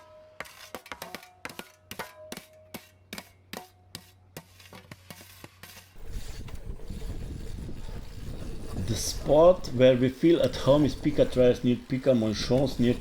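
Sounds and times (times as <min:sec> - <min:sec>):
shovels scraping packed dirt: 0:00.0 - 0:13.0.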